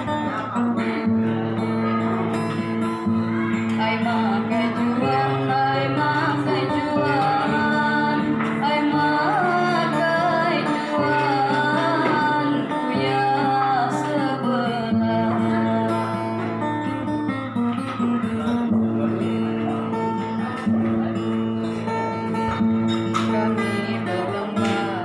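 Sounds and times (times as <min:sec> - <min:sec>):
woman singing slow melody: 0:03.7 - 0:16.6, 0:23.5 - 0:25.0.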